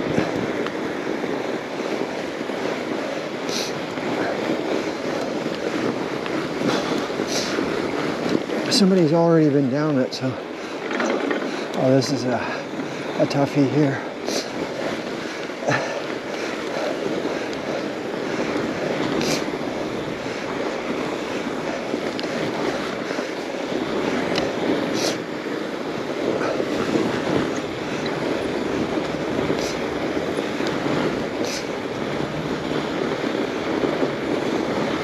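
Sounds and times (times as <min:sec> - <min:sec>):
tyre and wind rush: 0:00.0 - 0:35.0
bike clicks and knocks: 0:10.8 - 0:11.6.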